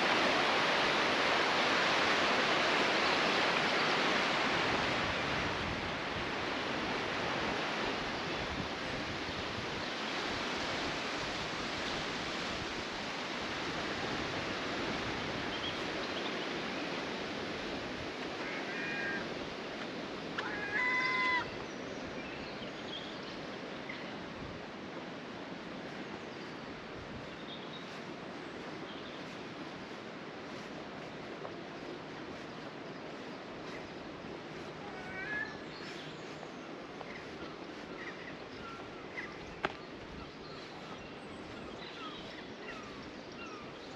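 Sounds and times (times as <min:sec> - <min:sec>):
flowing water rushing: 0:00.0 - 0:43.9
bird calls: 0:20.3 - 0:24.2, 0:31.5 - 0:43.9.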